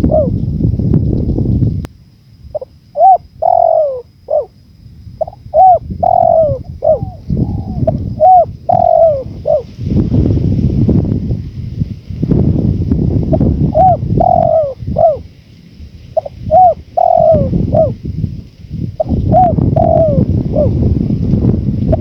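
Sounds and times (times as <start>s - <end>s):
dove cooing: 0.0s - 0.5s, 2.6s - 4.6s, 5.2s - 9.7s, 13.3s - 15.3s, 16.2s - 18.0s, 19.0s - 20.9s
low wind rumble: 0.0s - 22.0s.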